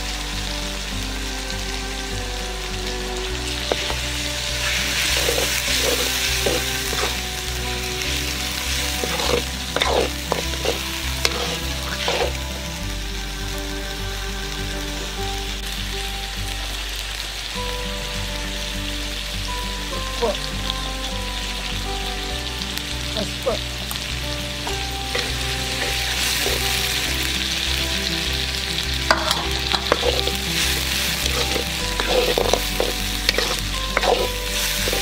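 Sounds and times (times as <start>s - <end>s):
meat sizzling in hot oil: 0.0s - 35.0s
metal spatula scraping a pan: 3.6s - 7.4s, 8.1s - 12.4s, 25.1s - 27.2s, 29.1s - 35.0s.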